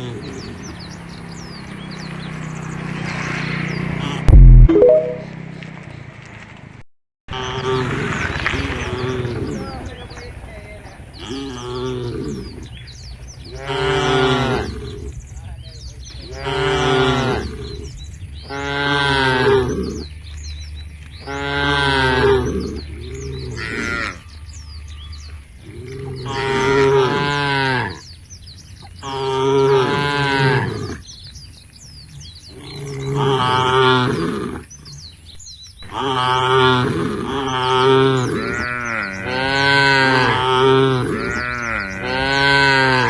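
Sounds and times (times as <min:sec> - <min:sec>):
cows mooing: 0:13.5 - 0:14.7, 0:16.2 - 0:17.8, 0:18.5 - 0:20.0, 0:21.2 - 0:24.3, 0:25.9 - 0:28.1, 0:29.0 - 0:31.0, 0:35.9 - 0:43.0.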